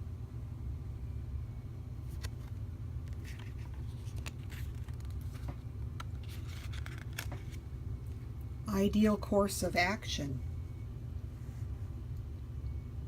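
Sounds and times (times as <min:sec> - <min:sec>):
steady low hum: 0:00.0 - 0:13.0
cards clicking and sliding: 0:02.0 - 0:07.6.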